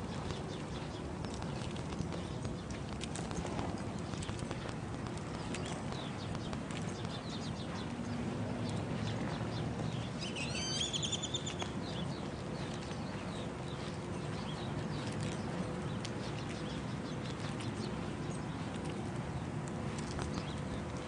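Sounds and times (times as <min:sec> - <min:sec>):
birds chirping: 0:00.0 - 0:21.0
low background hum: 0:00.0 - 0:21.0
loud warbling bird call: 0:10.3 - 0:11.5.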